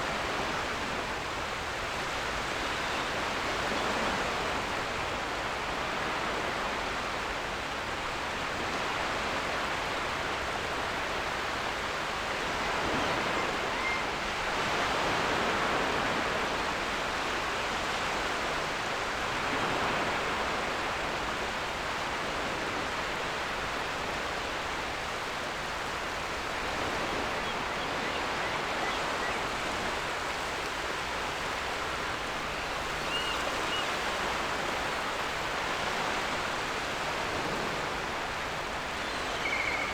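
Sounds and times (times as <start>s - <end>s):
ocean waves washing on beach: 0.0s - 39.9s
faint seagull calls: 12.8s - 14.9s, 32.5s - 34.2s, 38.9s - 39.9s.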